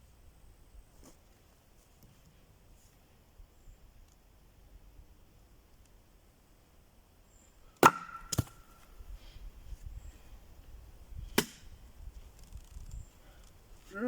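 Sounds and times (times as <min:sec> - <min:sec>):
axe chopping wood: 0:07.8 - 0:08.7, 0:11.3 - 0:11.7.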